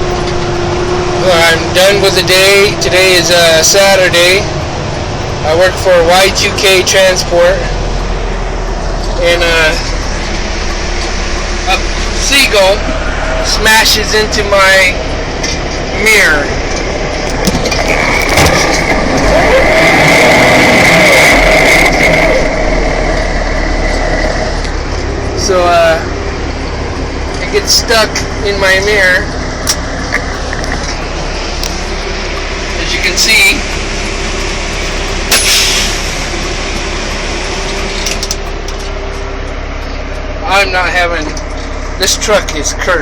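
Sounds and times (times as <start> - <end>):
road noise: 0.0 - 43.0
truck engine: 0.0 - 43.0
loud burst of noise: 16.4 - 24.6, 31.1 - 38.1.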